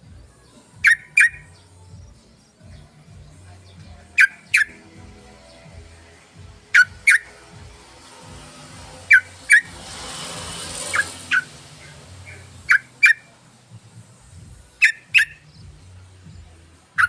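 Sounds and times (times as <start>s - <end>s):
bulbul calling: 0.8s - 7.6s, 8.9s - 9.8s, 10.8s - 13.4s, 14.1s - 17.0s.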